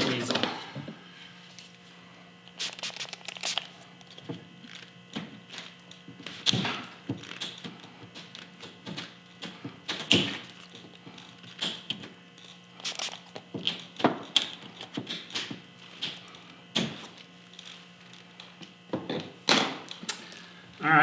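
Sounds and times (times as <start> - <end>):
steady low hum: 0.0 - 14.8.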